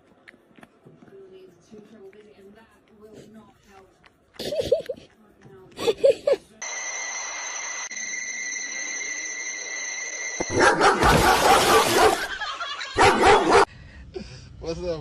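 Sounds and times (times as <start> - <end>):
steady high-pitched tone: 6.6 - 10.6
dog barking loudly: 10.5 - 13.7.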